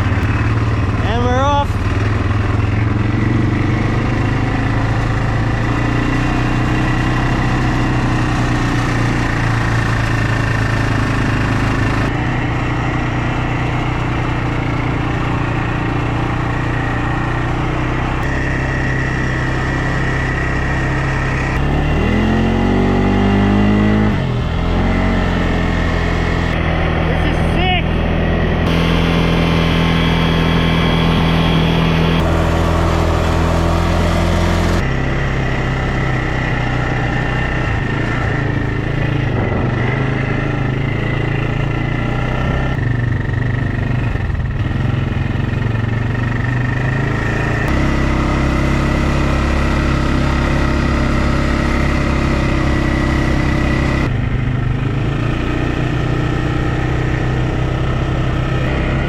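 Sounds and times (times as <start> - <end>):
quad bike engine running: 0.0 - 59.0.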